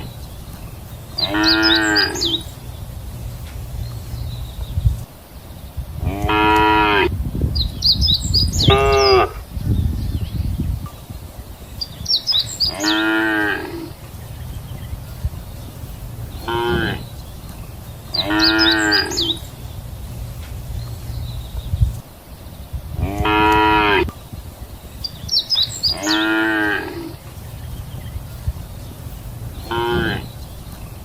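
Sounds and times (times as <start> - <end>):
cattle mooing: 1.2 - 2.4, 6.0 - 7.1, 12.7 - 14.0, 16.4 - 17.0, 18.2 - 19.4, 23.0 - 24.1, 25.9 - 27.2, 29.7 - 30.3.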